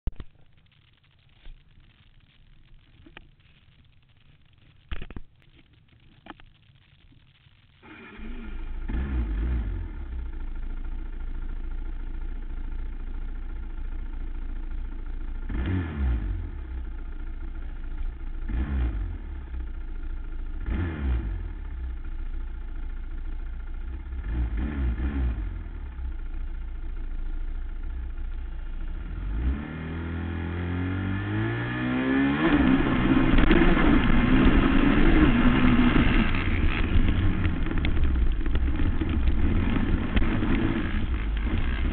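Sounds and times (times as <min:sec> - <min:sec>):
quad engines idling and revving: 0:07.8 - 0:12.3, 0:15.3 - 0:19.9, 0:20.6 - 0:22.1, 0:23.8 - 0:41.9.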